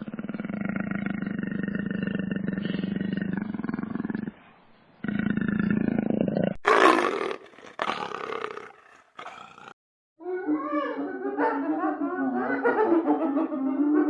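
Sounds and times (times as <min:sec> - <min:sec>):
large animal growling and roaring: 0:00.0 - 0:04.4, 0:05.0 - 0:09.8.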